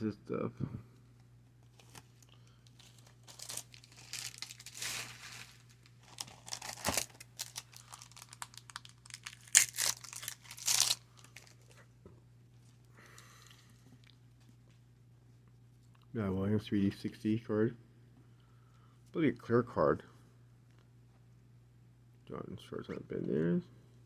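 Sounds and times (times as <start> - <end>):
wrapper crinkling and tearing: 1.8 - 11.7.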